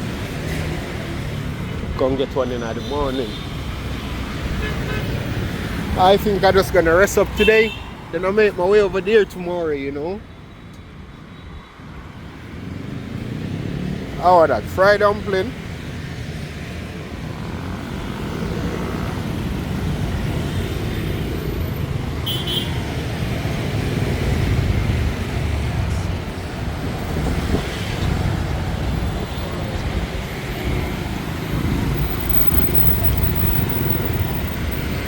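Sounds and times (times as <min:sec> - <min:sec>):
motorbike engines passing: 0:00.0 - 0:10.2, 0:12.1 - 0:35.0.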